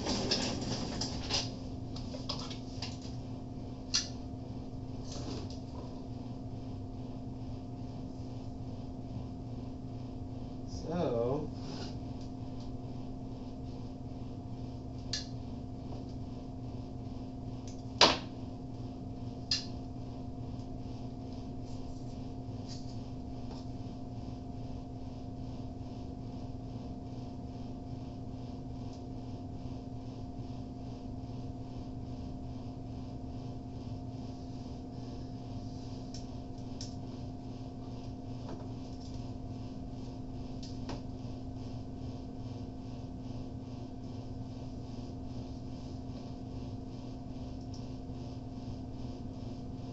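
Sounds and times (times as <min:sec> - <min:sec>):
steady electrical hum: 0:00.0 - 0:49.9.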